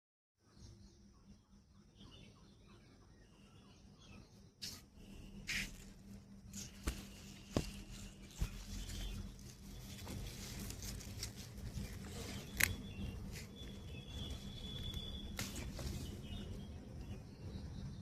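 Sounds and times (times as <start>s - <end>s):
plants rustling: 4.6s - 16.8s.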